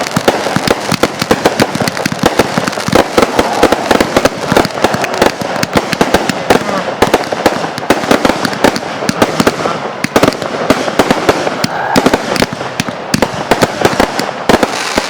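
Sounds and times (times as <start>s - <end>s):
fireworks bangs: 0.0s - 15.0s
fireworks crackling: 0.0s - 15.0s.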